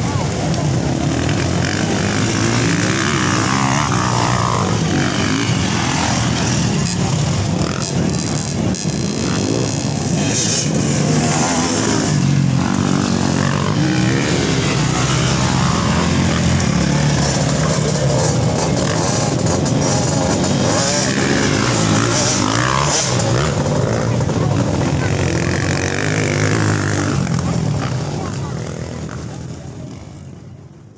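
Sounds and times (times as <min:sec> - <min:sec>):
motocross bikes revving: 0:00.0 - 0:30.9.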